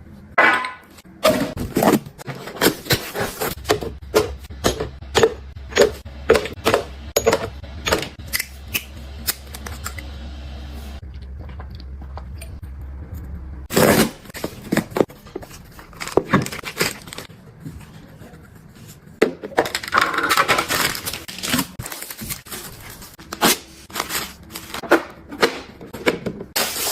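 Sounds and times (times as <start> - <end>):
household items clicking and knocking: 0.6 - 8.3.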